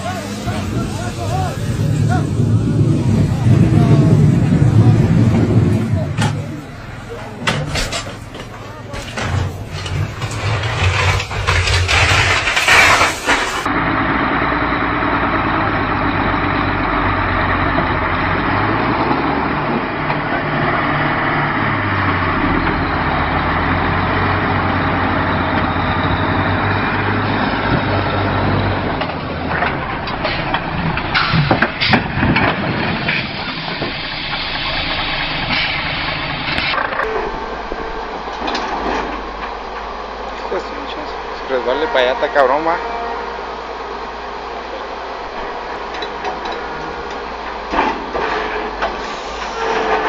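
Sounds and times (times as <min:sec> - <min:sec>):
truck engine droning: 0:00.0 - 0:50.0
sharp knocks and clatter: 0:07.4 - 0:13.7, 0:29.0 - 0:34.6.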